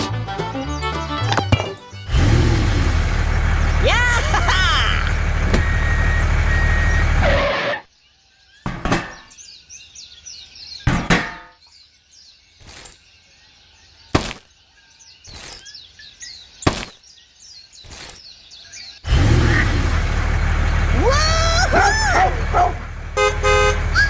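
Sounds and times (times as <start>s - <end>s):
small birds chirping: 3.5s - 6.1s, 7.9s - 23.0s
sharp knocks: 10.9s - 11.6s.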